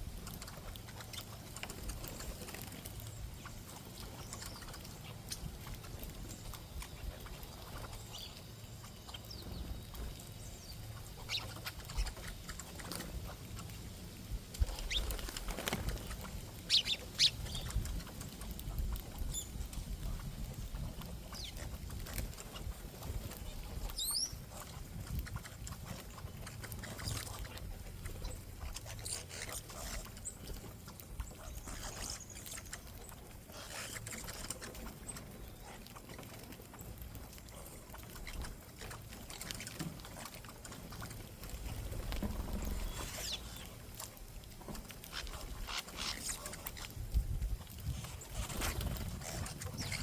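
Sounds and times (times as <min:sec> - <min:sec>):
wind rumble on microphone: 0:13.0 - 0:28.9, 0:41.5 - 0:50.0
high bird chirps: 0:16.7 - 0:17.9, 0:24.0 - 0:24.4, 0:42.7 - 0:43.7.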